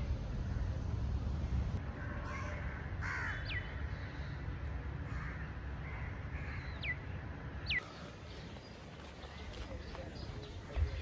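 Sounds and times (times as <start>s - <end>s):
low steady rumble: 0.0s - 7.9s
bird cawing: 1.9s - 8.2s.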